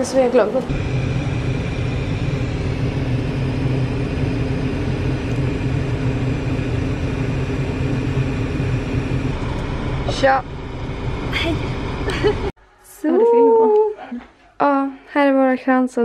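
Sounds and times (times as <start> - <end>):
car idling: 0.7 - 12.5
faint high whine: 0.7 - 12.5.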